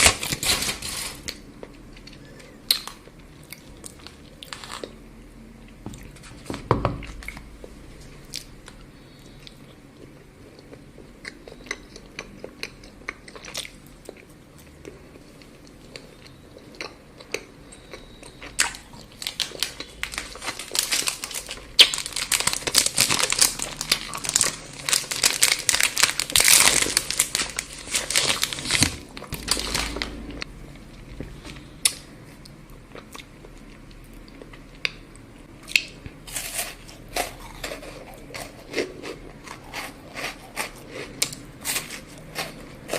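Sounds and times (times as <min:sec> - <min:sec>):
crackling and crinkling: 0:00.0 - 0:04.9, 0:18.5 - 0:42.9
crunchy chewing of chocolate: 0:08.3 - 0:42.9.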